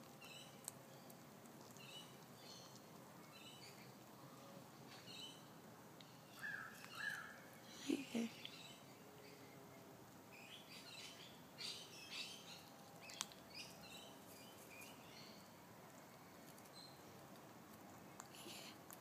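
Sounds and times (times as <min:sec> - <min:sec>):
faint bird chirps: 0:01.8 - 0:09.8.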